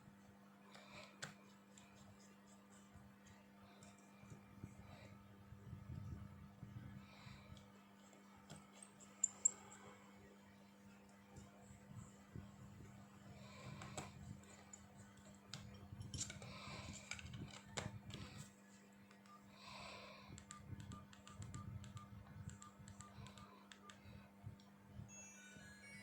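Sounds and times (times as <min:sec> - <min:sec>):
phone keypad clicks and taps: 0:20.3 - 0:24.1
phone ringtone melody: 0:25.1 - 0:26.0.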